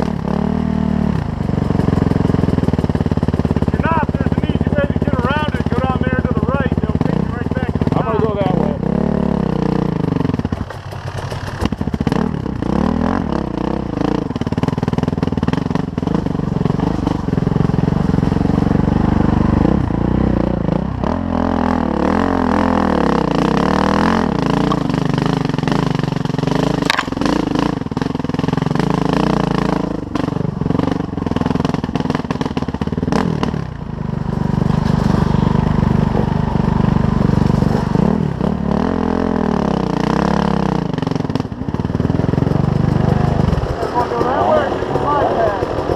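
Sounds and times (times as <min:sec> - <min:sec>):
dirt bike engine revving: 0:00.0 - 0:45.9
knocks and rattles: 0:10.3 - 0:12.6, 0:24.5 - 0:28.2, 0:34.2 - 0:36.6.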